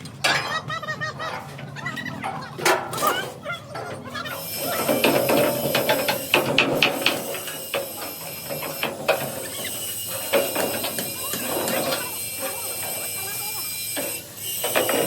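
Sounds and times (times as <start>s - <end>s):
steady metalworking hiss: 4.4s - 15.0s.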